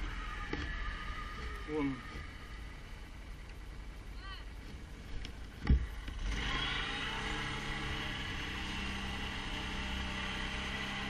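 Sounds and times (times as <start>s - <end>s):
atv engine running: 4.8s - 11.0s.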